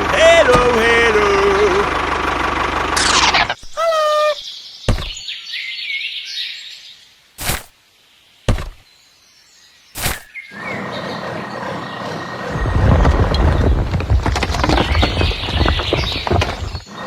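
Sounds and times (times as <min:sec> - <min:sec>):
sharp knocks: 0:04.9 - 0:05.2, 0:08.5 - 0:08.8.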